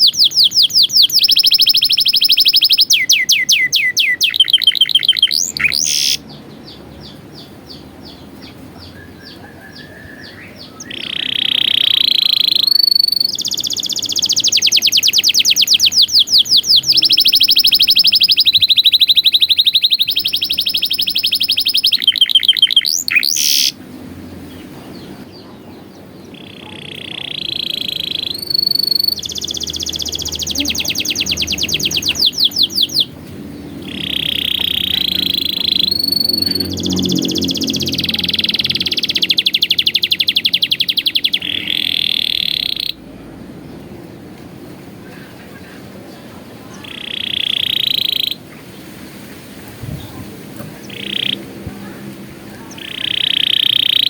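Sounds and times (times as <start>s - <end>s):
canary singing trills: 0.0s - 44.0s, 45.0s - 54.0s.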